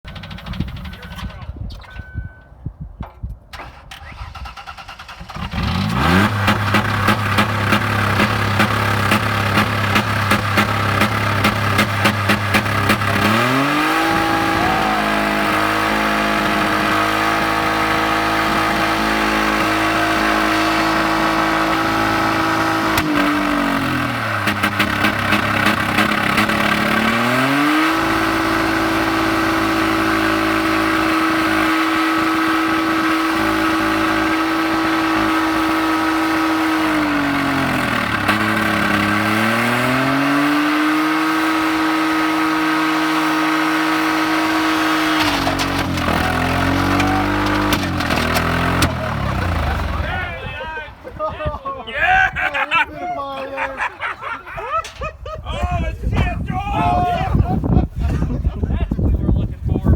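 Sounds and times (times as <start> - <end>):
engine clattering: 0.0 - 1.6, 3.5 - 51.1
car engine revving high: 5.3 - 50.2.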